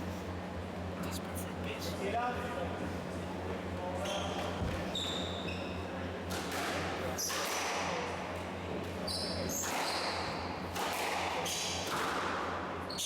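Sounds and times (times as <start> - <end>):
steady low hum: 0.0 - 4.9
shoes squeaking on court floor: 4.0 - 5.8
squash ball smacks: 10.7 - 12.2.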